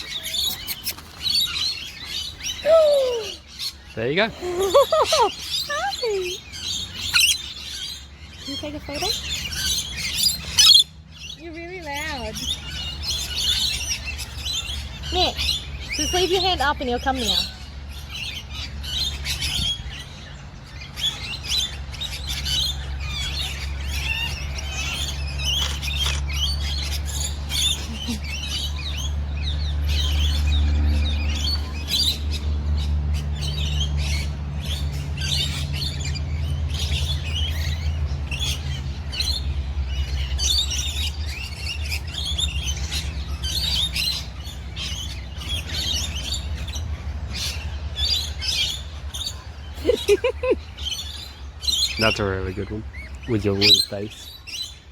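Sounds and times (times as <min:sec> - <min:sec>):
birds chirping and squawking: 0:00.0 - 0:54.9.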